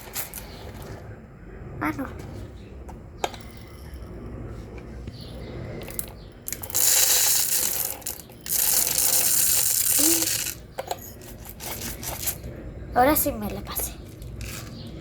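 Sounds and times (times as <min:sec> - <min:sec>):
dry rice pouring and rattling: 0:06.5 - 0:10.6.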